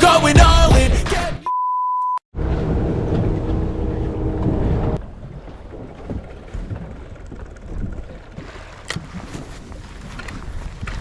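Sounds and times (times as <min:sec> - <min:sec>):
boat engine rumble: 0:02.3 - 0:11.0
wind on microphone: 0:03.1 - 0:11.0.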